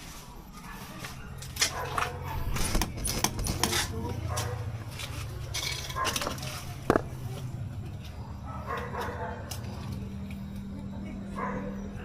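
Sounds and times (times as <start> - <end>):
clinks and knocks of hard objects: 1.4 - 7.4.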